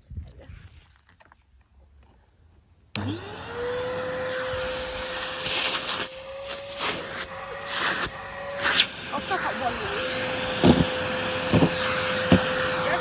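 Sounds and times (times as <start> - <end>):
vacuum cleaner motor whine: 3.0 - 13.0.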